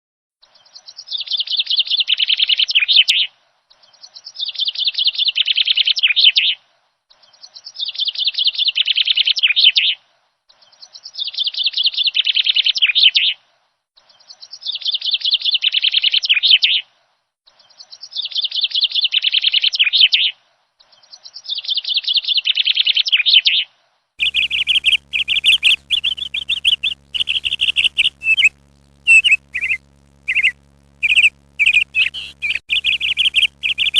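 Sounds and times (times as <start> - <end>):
low steady hum: 24.2 - 33.9
parrot rapid pulsing call: 24.2 - 33.9.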